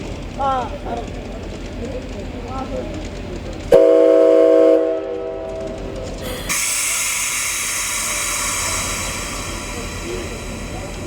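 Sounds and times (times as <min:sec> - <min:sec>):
steam locomotive whistle: 0:03.7 - 0:05.6
loud high steam hiss: 0:06.2 - 0:11.0.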